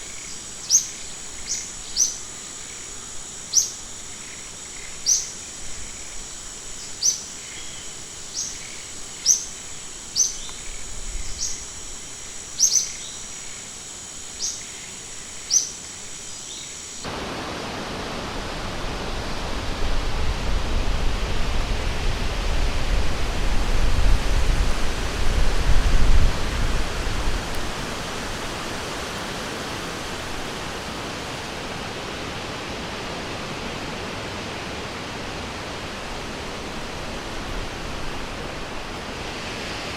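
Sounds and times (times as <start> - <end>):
insects buzzing: 0.0 - 39.9
bird chirping: 12.6 - 13.3
river water rushing: 17.0 - 23.6, 26.4 - 39.9.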